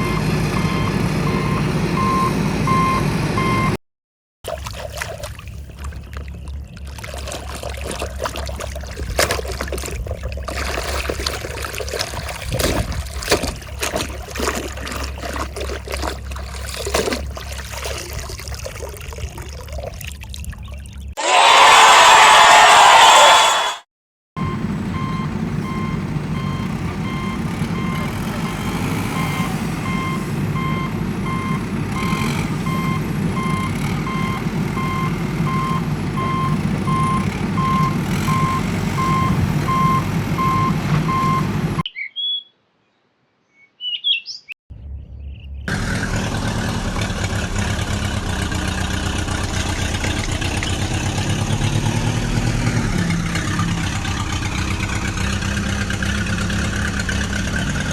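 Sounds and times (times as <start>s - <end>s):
engine running: 0.0s - 3.8s, 24.4s - 41.8s, 45.5s - 57.9s
vehicle reversing alarm beeping: 0.0s - 3.8s, 24.4s - 41.9s.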